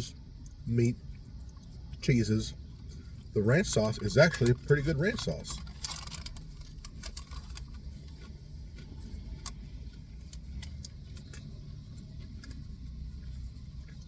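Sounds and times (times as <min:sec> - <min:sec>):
low engine-like rumble: 0:00.0 - 0:14.0.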